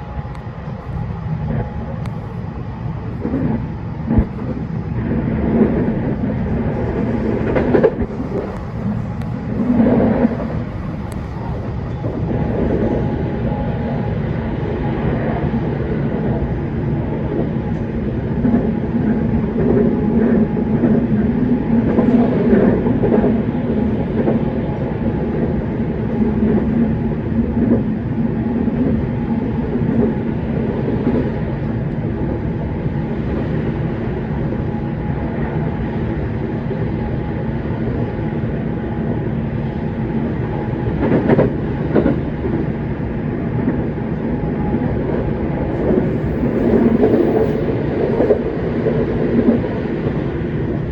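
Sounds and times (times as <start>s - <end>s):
wheel-on-rail rumble: 0.0s - 14.0s, 38.3s - 50.9s
traction motor hum: 45.7s - 48.4s.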